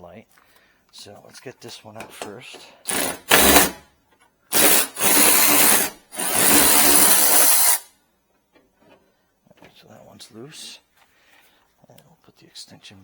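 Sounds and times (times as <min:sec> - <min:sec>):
cordless drill spinning: 0:02.9 - 0:03.8, 0:04.5 - 0:07.9.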